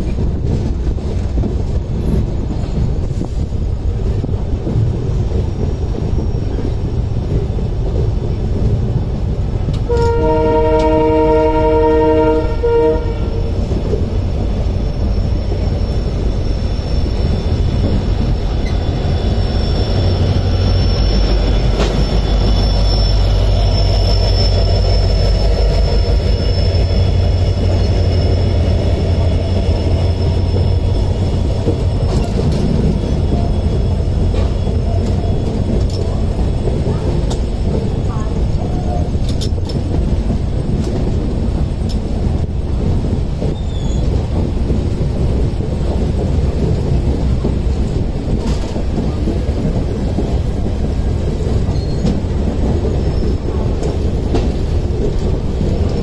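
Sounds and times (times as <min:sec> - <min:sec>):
passing locomotive engine rumble: 0:00.0 - 0:56.0
train rumble and rail noise: 0:00.0 - 0:56.0
faint high wheel squeal: 0:06.1 - 0:06.9, 0:14.4 - 0:36.2, 0:43.5 - 0:44.2, 0:51.6 - 0:53.6
locomotive horn blast: 0:09.9 - 0:13.7.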